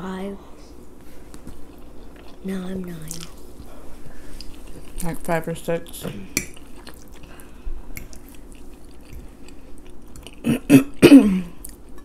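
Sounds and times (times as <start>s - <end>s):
person chewing food: 1.3s - 5.1s, 6.3s - 10.5s.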